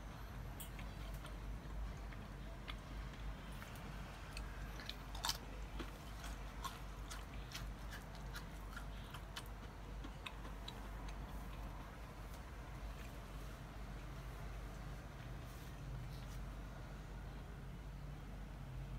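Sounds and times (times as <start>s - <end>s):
faint low hum: 0.0s - 18.9s
crunching potato chip: 3.6s - 11.7s.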